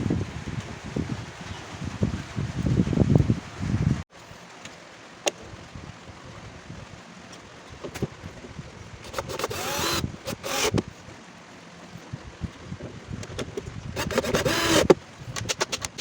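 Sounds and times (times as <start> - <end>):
small table saw running: 9.0 - 10.8, 14.0 - 15.0.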